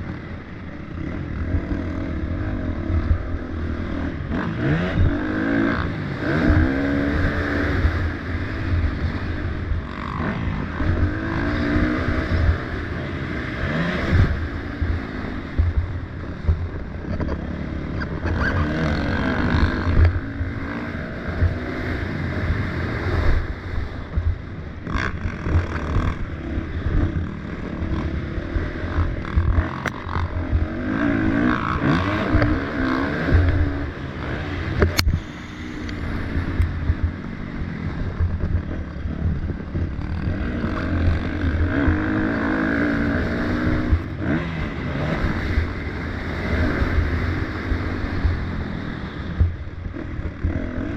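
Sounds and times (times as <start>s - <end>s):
motocross bike engines revving: 0.0s - 50.9s
low rumble: 8.0s - 46.2s.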